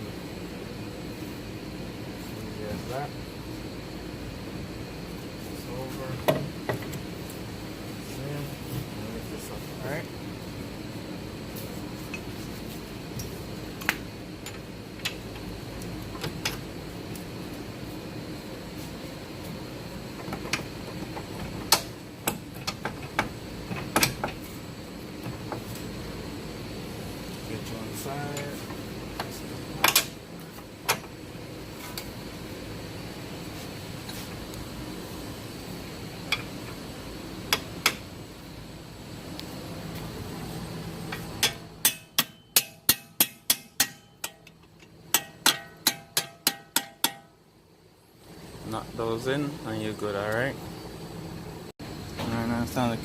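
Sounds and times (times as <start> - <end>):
steady background hum: 0.0 - 53.0
parts and tools clicking and knocking: 20.1 - 24.4, 28.3 - 30.2, 41.1 - 47.3.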